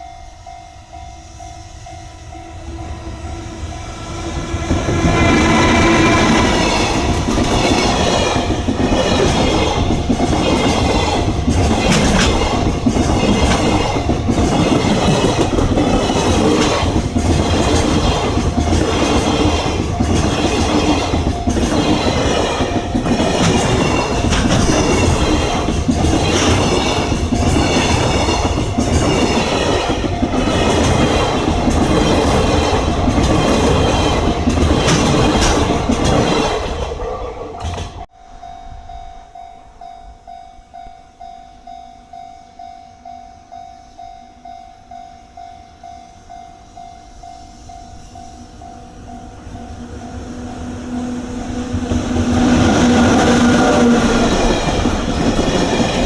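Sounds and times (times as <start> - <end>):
freight train passing: 0.0 - 56.0
wheels clattering over rail joints: 4.4 - 38.1.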